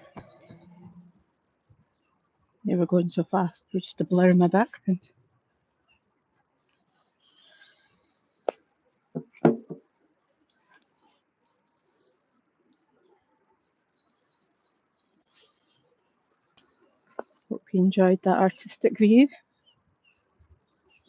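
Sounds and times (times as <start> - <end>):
small songbirds singing: 0.0 - 21.0
sharp knocks: 9.2 - 9.8.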